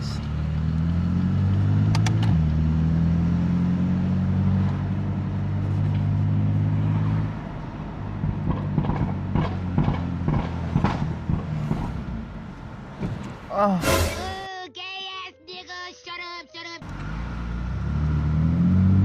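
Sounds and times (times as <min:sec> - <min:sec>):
car exhaust under throttle: 0:00.0 - 0:13.6
exhaust pops and crackles: 0:01.9 - 0:02.4, 0:08.2 - 0:13.5.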